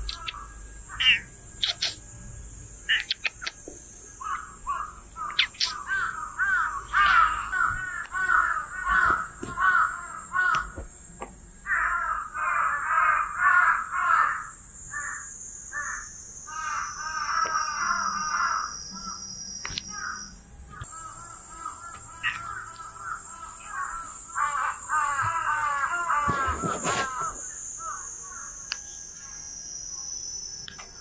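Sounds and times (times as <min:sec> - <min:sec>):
birds calling harsh notes: 0:00.0 - 0:02.1, 0:02.8 - 0:10.8, 0:11.7 - 0:28.9
high-pitched drone: 0:00.0 - 0:09.5.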